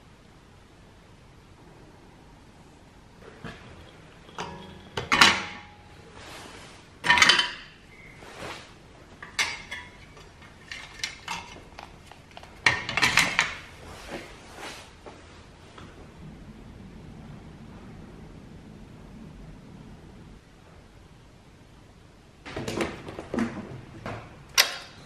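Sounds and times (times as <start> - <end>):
metal objects clinking: 3.2 - 5.9.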